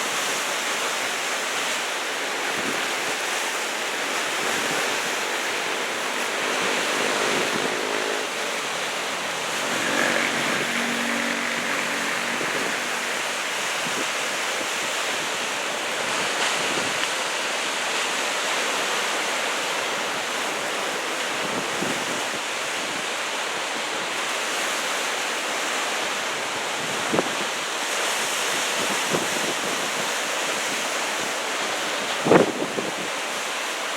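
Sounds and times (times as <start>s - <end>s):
ocean waves breaking: 0.0s - 22.2s
wind rumbling on microphone: 2.0s - 17.0s.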